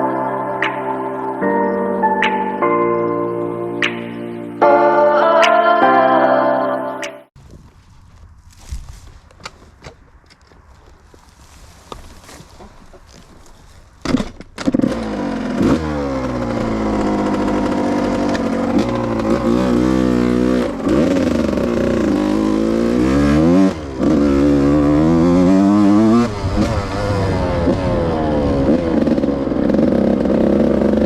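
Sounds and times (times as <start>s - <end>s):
two-stroke engine revving: 14.0s - 31.0s.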